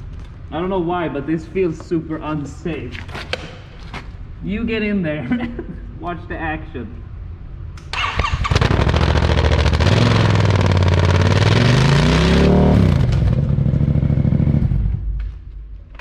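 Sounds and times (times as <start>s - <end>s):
motorcycle engine revving: 8.0s - 15.3s.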